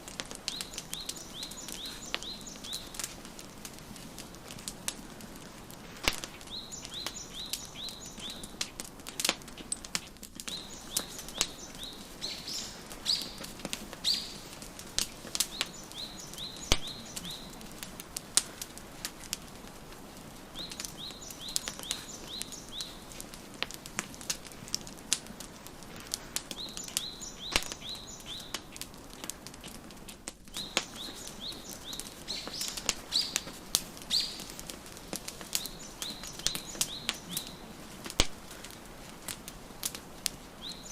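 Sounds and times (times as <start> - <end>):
steady hiss: 0.0 - 40.9
wood fire crackling and popping: 0.0 - 40.9
small songbird chirping: 0.5 - 3.1, 6.2 - 8.6, 10.4 - 17.9, 20.5 - 23.1, 26.5 - 28.8, 30.5 - 34.6, 35.3 - 37.8, 40.6 - 40.9.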